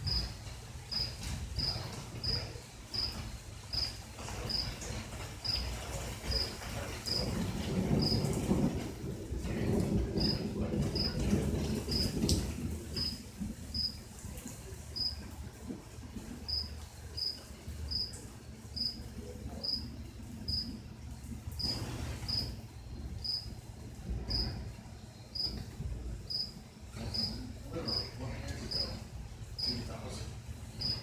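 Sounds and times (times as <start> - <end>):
cricket chirping: 0.0 - 4.8, 5.4 - 5.7, 10.2 - 10.4, 11.0 - 11.2, 13.0 - 13.2, 13.8 - 14.0, 15.0 - 15.2, 16.5 - 18.2, 18.8 - 19.0, 19.6 - 19.9, 20.5 - 20.7, 21.6 - 22.6, 23.2 - 23.5, 24.3 - 24.6, 25.3 - 25.6, 26.3 - 29.0, 29.6 - 29.8, 30.8 - 31.0.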